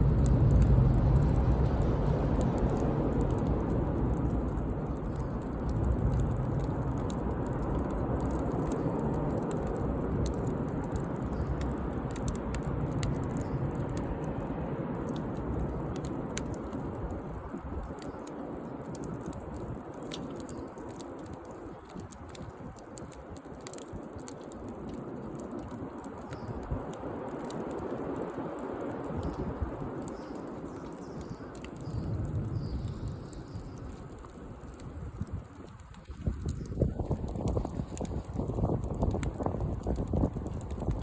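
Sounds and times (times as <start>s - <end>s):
low rushing of fire: 0.0s - 41.0s
wood fire crackling and popping: 0.0s - 41.0s.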